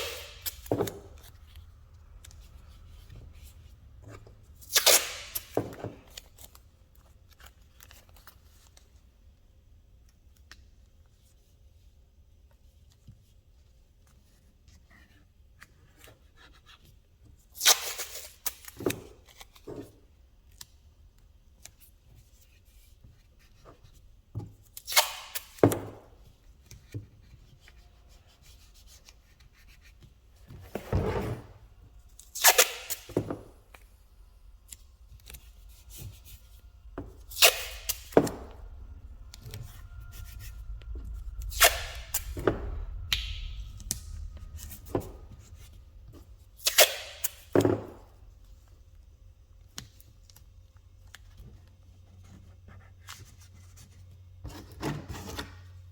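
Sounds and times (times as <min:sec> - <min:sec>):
steady low hum: 0:33.0 - 0:49.8.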